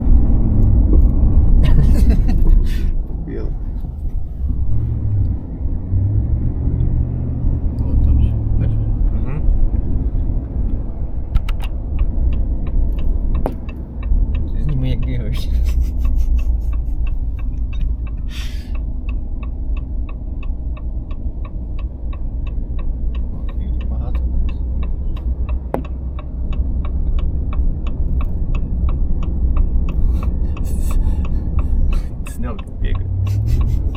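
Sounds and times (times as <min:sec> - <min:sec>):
vehicle engine rumbling: 0:00.0 - 0:33.9
light repeating tick: 0:10.4 - 0:33.9.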